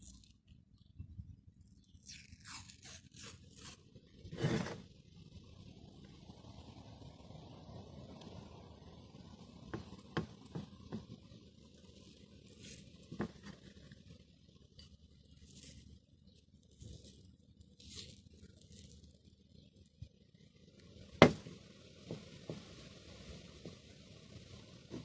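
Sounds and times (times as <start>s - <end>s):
scraping strokes: 2.0s - 4.8s.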